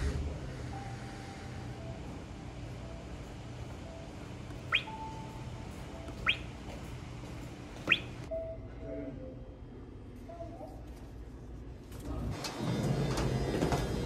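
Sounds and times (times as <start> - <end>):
bird chirping: 4.6 - 5.3, 6.1 - 6.5, 7.8 - 8.3.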